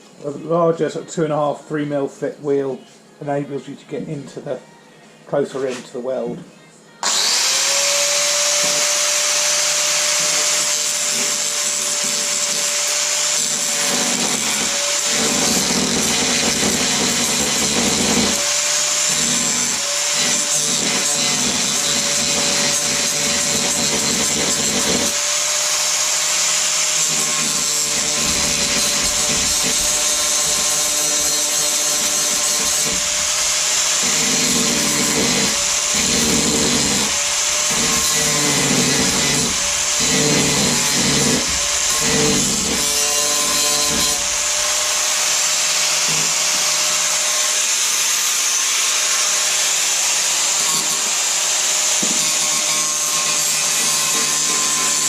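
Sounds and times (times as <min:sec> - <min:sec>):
angle grinder motor whine: 0:07.0 - 0:47.4
grinding wheel on metal: 0:08.4 - 0:45.2.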